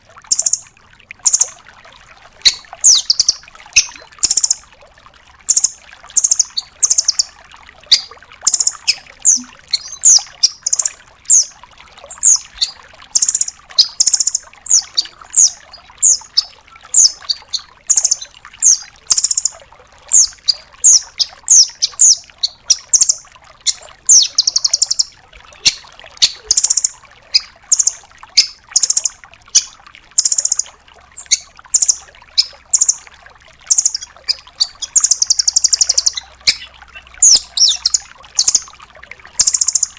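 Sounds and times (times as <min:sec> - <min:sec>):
bird chips and rapid trills: 0:00.3 - 0:00.6, 0:01.2 - 0:01.6, 0:02.4 - 0:04.6, 0:05.5 - 0:07.3, 0:07.9 - 0:11.5, 0:12.1 - 0:33.0, 0:33.7 - 0:38.7, 0:39.4 - 0:39.9.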